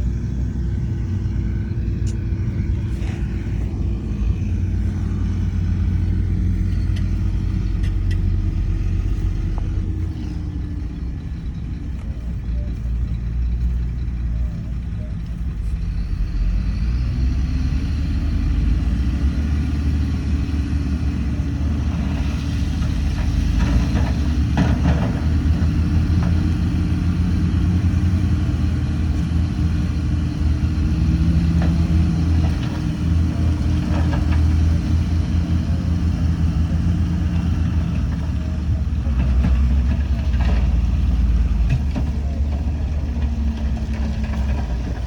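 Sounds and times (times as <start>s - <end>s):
diesel engine running under load: 0.0s - 45.0s.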